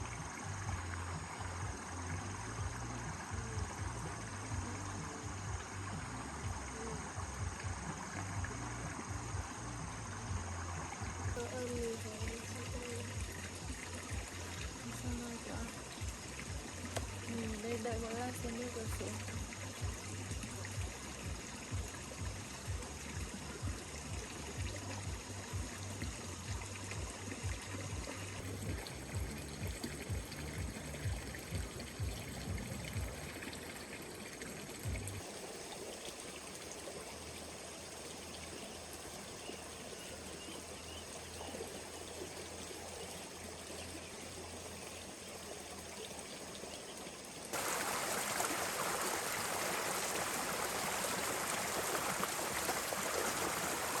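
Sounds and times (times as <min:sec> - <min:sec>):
rhythmic low pulsing: 0:00.0 - 0:35.9
loud rush of water: 0:00.0 - 0:39.3, 0:47.2 - 0:54.0
floodwater flowing: 0:00.0 - 0:54.0.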